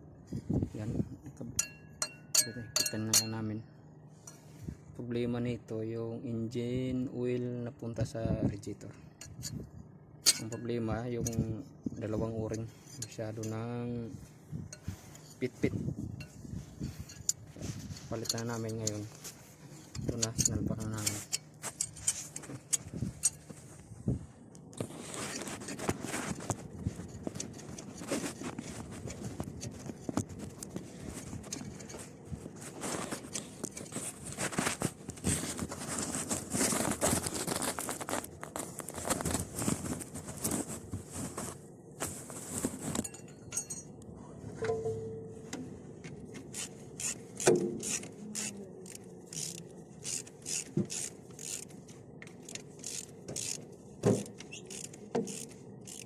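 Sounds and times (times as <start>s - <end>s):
hand tools clinking: 1.6s - 3.5s, 10.2s - 11.4s, 16.2s - 23.5s, 42.9s - 44.0s
metal scraping: 10.2s - 23.9s, 44.5s - 45.7s.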